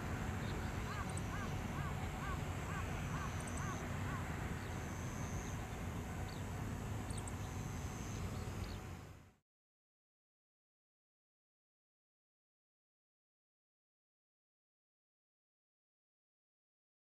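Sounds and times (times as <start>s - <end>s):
bird calling: 0.4s - 6.5s
faint high bird chirps: 0.4s - 8.9s.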